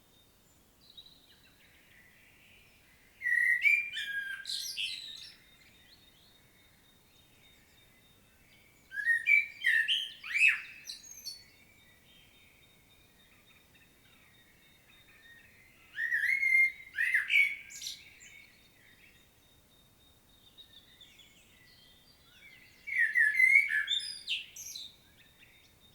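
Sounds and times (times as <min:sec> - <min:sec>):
blackbird singing: 0:00.1 - 0:25.9.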